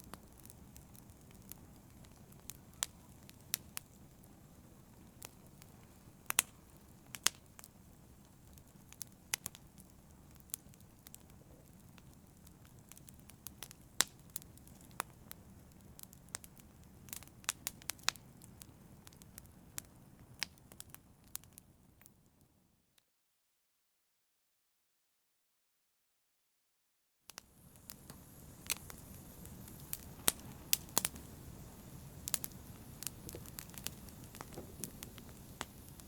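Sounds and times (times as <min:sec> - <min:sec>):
fire crackling and popping: 0:00.0 - 0:22.1, 0:27.3 - 0:36.0.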